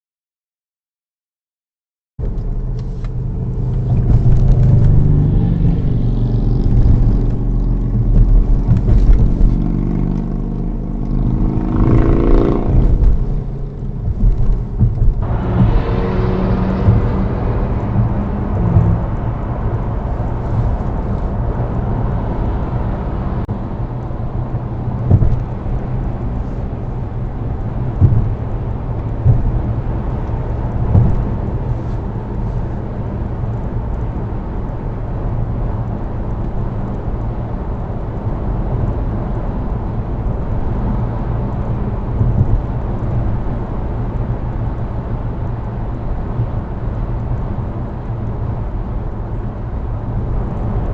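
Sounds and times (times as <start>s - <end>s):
car driving in traffic: 2.2s - 50.9s
short thumps: 6.7s - 10.3s, 11.2s - 19.4s, 25.0s - 25.9s, 27.8s - 32.1s, 42.2s - 43.3s.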